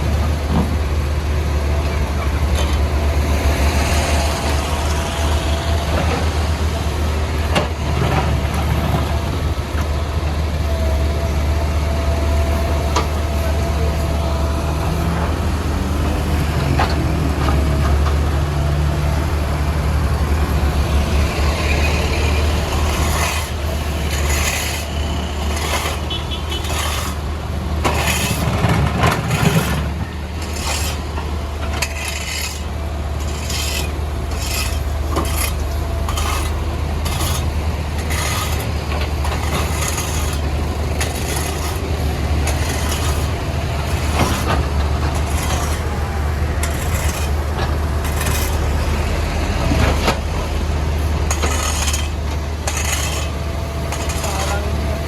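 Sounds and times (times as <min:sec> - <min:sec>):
backhoe diesel engine running: 0:00.0 - 0:55.0
bucket clanking and scraping road: 0:00.0 - 0:55.0.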